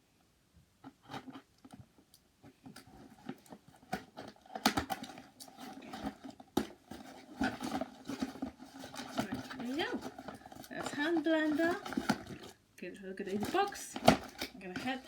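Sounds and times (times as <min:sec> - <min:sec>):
cardboard packaging rustling: 0:02.5 - 0:12.6, 0:13.2 - 0:15.0.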